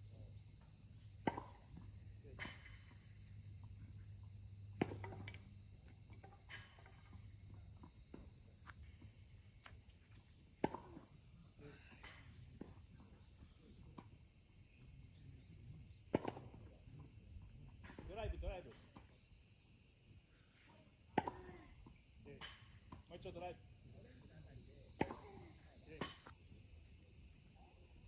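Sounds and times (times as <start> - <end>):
steady high hiss: 8.0 - 28.0.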